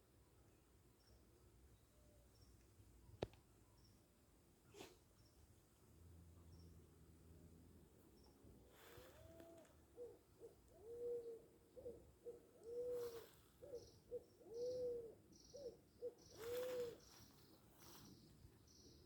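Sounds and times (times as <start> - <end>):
bird hooting call: 8.8 - 17.2.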